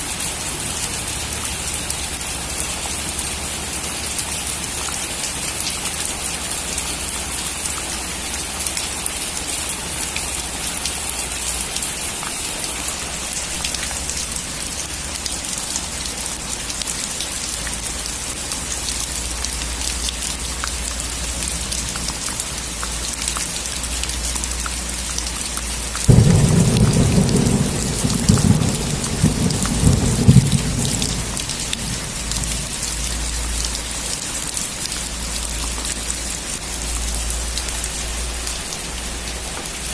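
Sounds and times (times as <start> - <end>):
heavy rain hissing: 25.7 - 39.9
low thunderclap rumbling: 26.1 - 33.4.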